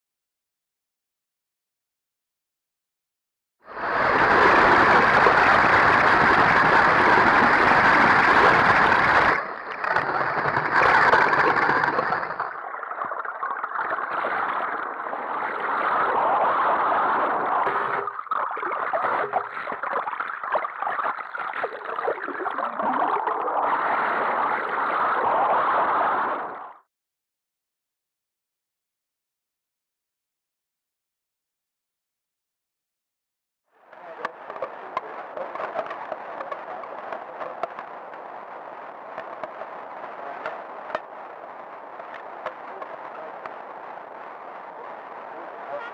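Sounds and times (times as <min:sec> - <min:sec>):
river water rushing: 0:03.8 - 0:12.4.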